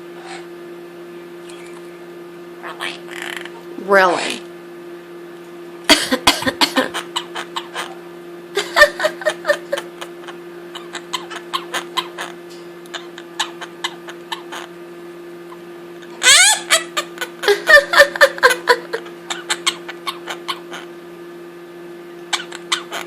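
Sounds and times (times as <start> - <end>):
parrot clicking chatter: 2.8 - 3.6, 6.9 - 8.0, 10.7 - 14.7, 19.3 - 20.9, 22.3 - 23.0.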